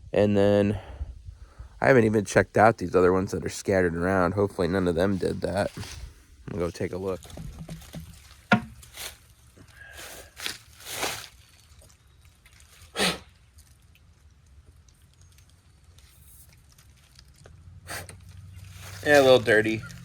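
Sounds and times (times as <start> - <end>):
footsteps outdoors: 3.6 - 12.8
rustling: 5.0 - 20.0.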